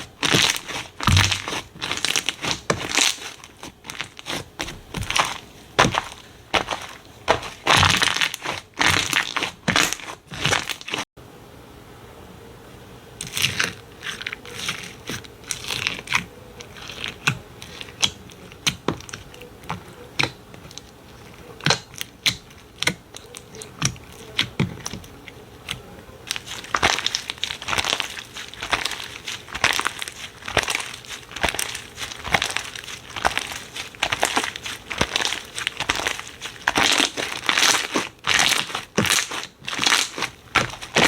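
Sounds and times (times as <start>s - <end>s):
slime squishing and popping: 0.0s - 11.0s, 25.7s - 41.0s.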